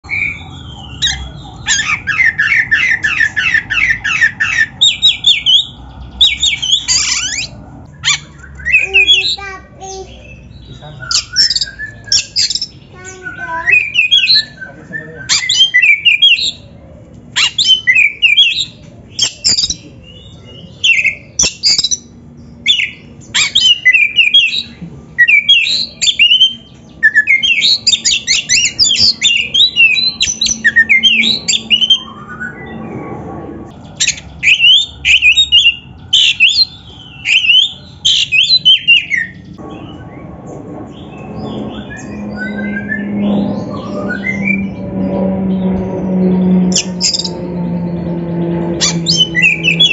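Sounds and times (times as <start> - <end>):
bird singing whistled phrases: 0.0 - 16.6, 22.7 - 32.8, 34.0 - 39.4.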